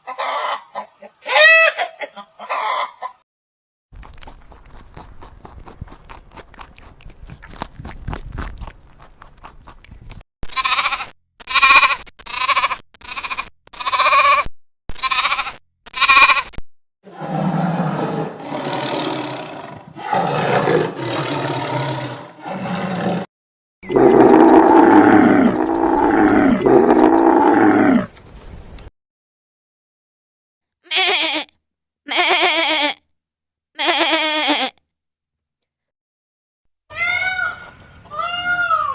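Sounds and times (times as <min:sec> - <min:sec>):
farm animal calls: 0:00.0 - 0:03.2.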